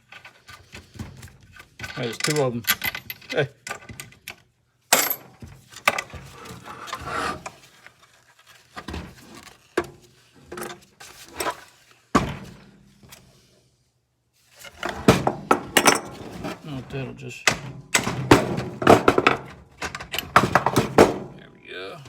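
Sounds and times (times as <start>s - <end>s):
tools knocking metal parts: 1.8s - 6.2s, 15.0s - 16.2s, 17.4s - 21.4s.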